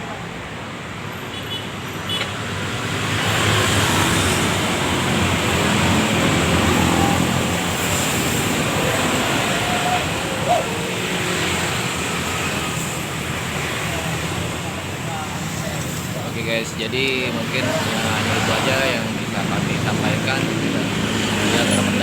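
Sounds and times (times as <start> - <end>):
traffic and road noise: 0.0 - 22.0.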